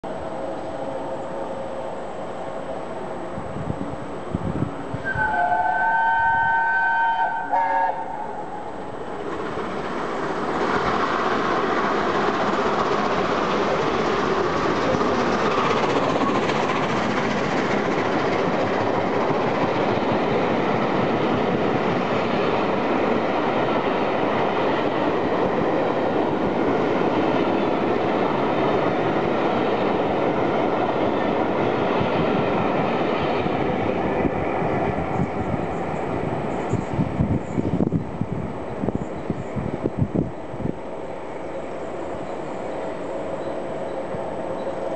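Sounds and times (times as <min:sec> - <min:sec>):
train wheels rumbling on rails: 0:00.1 - 0:44.9
steam locomotive whistle: 0:05.0 - 0:08.7.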